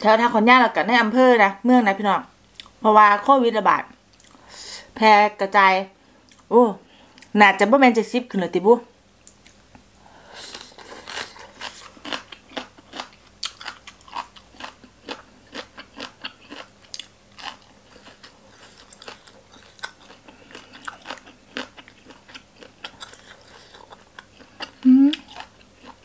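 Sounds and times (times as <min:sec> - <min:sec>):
woman chewing crunchy food: 0:10.4 - 0:26.0.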